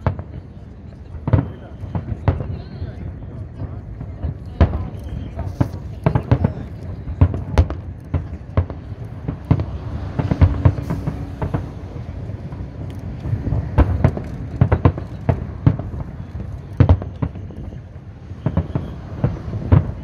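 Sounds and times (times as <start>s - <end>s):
continuous low rumble: 0.0s - 20.0s
fireworks booming and cracking: 0.0s - 20.0s.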